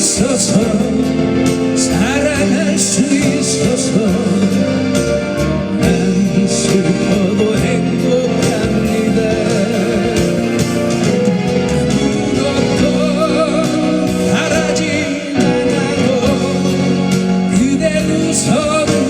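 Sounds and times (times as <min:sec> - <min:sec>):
backing track music: 0:00.0 - 0:19.0
man singing pop ballad: 0:00.0 - 0:19.0.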